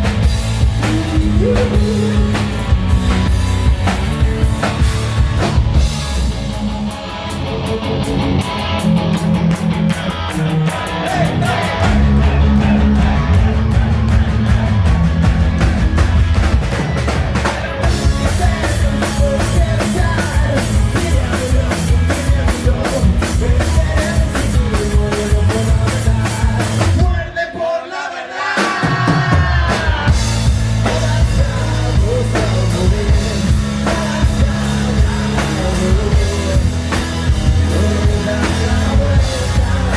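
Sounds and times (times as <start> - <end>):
electric guitar: 0.0 - 27.1, 29.9 - 39.9
bass guitar: 0.0 - 27.3, 29.1 - 39.9
drum kit: 0.0 - 27.4, 28.4 - 39.9
person singing: 0.6 - 2.8, 10.0 - 14.4, 17.4 - 27.9, 28.6 - 39.9.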